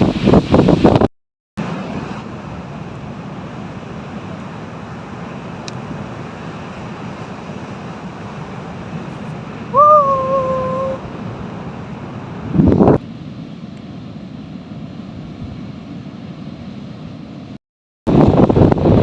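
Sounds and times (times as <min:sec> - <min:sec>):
wind buffeting microphone: 0:00.0 - 0:01.1, 0:07.0 - 0:13.2, 0:18.1 - 0:19.0.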